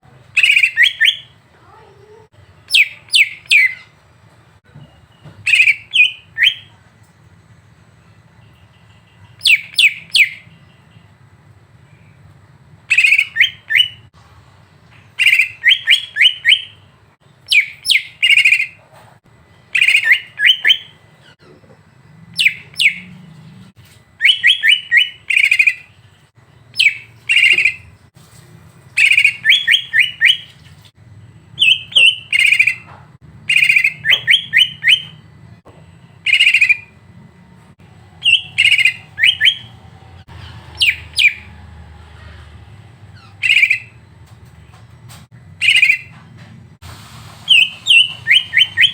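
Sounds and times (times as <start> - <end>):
songbird chattering calls: 33.5 - 35.1, 36.3 - 36.8, 38.2 - 39.7.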